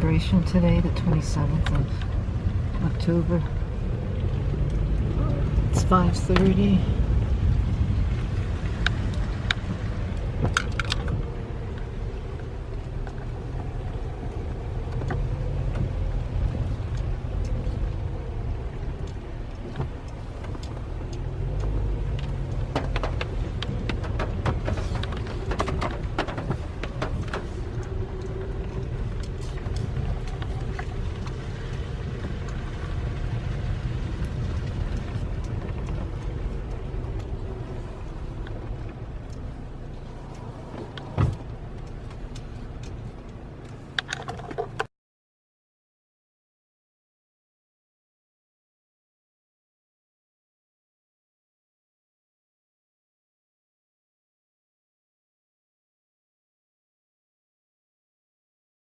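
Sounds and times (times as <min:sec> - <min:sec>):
car engine and road rumble: 0:00.0 - 0:44.9
light clicks and rattles: 0:00.0 - 0:44.9.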